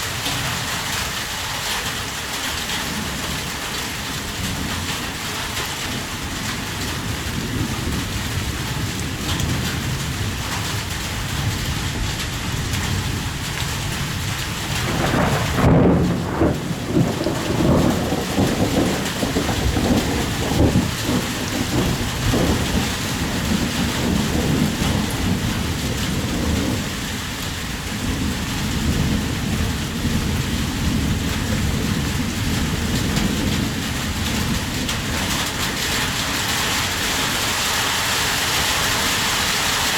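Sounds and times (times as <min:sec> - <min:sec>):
heavy rain falling: 0:00.0 - 0:39.9
thunder rumbling: 0:05.9 - 0:37.6.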